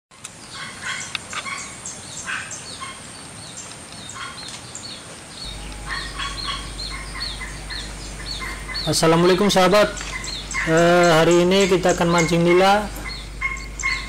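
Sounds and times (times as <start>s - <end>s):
birds chirping: 0.2s - 14.0s
low pulsed bird calls: 4.0s - 14.0s.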